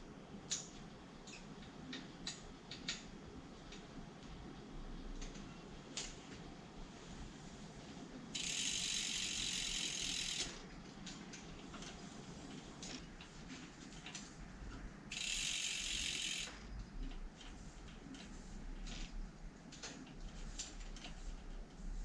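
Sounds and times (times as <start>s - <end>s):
bicycle freewheel hub clicking: 8.4s - 10.6s, 15.1s - 16.6s.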